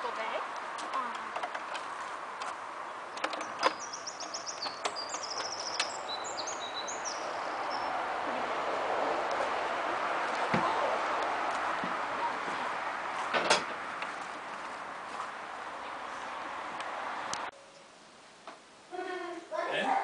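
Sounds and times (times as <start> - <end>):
songbird chirping: 0.0 - 13.1, 13.9 - 18.1
outdoor background noise: 0.0 - 20.0
sharp clicks and knocks: 0.6 - 3.8, 4.4 - 6.0, 13.2 - 14.3.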